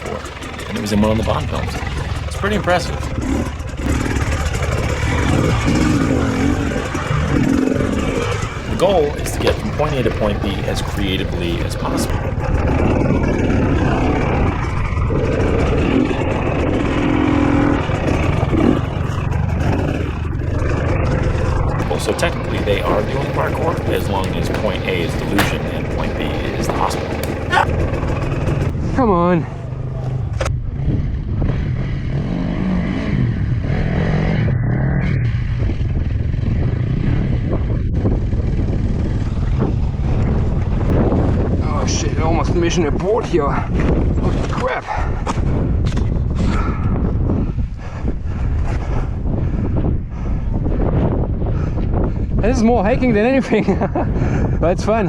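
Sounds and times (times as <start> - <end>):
dirt bike engine revving: 0.0 - 37.4.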